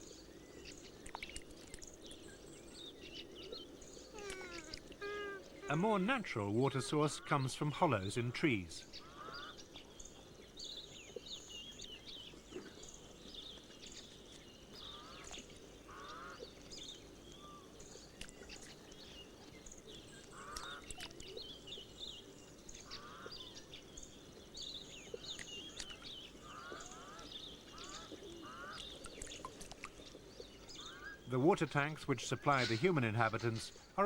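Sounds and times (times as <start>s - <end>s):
small birds chirping: 0.0s - 34.0s
short raspy bird call: 4.1s - 7.4s, 26.4s - 28.8s.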